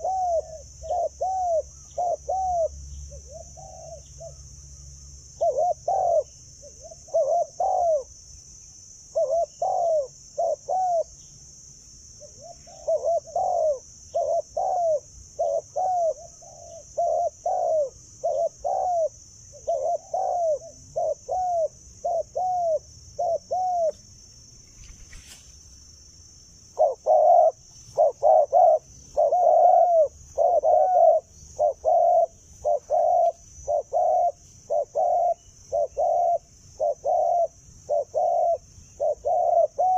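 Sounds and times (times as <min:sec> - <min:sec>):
dove cooing: 0:00.0 - 0:04.5, 0:05.4 - 0:08.1, 0:09.1 - 0:11.2, 0:12.2 - 0:24.0, 0:26.7 - 0:39.9.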